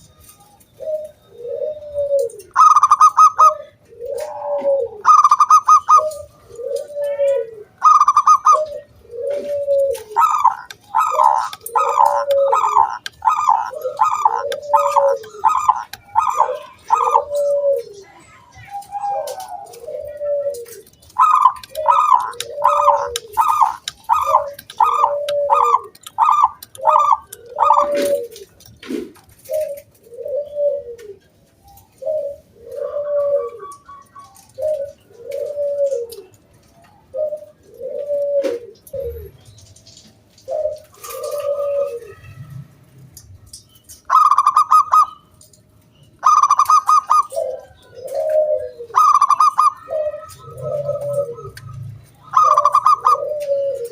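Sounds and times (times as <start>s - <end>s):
dove cooing: 0.0s - 45.6s, 46.2s - 53.9s
higher louder bird notes: 0.8s - 17.9s, 19.0s - 28.4s, 46.2s - 53.9s.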